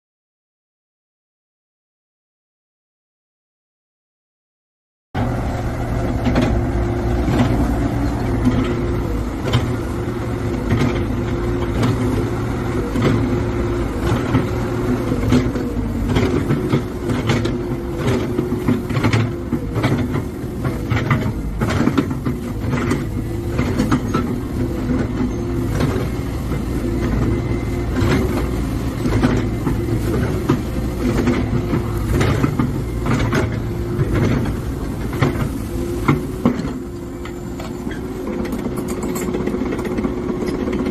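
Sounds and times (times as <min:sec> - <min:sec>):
excavator diesel engine running: 0:05.2 - 0:40.9
sharp metallic knocks and clanks: 0:30.4 - 0:40.9.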